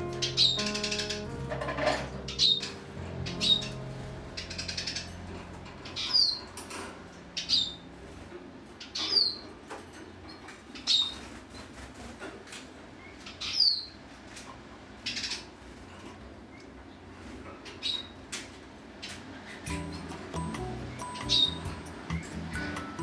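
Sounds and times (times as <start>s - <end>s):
soft background music: 0.0s - 9.5s, 19.7s - 23.0s
cage bird chirping: 0.0s - 11.8s, 12.7s - 23.0s.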